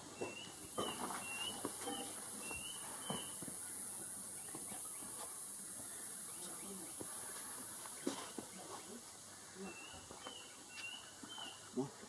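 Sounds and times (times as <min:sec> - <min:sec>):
handling knocks and shuffles: 0:00.0 - 0:06.0
steady high hiss: 0:00.0 - 0:12.0.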